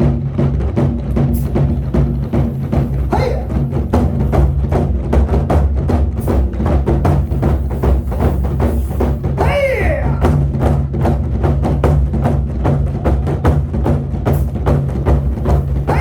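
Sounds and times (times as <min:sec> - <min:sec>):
drum ensemble playing fast: 0:00.0 - 0:16.0
cry rising and falling: 0:09.4 - 0:10.3.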